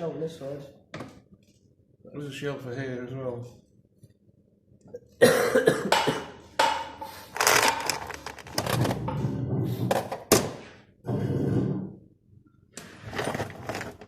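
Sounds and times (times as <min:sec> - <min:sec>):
sharp knocks: 0:05.8 - 0:07.1.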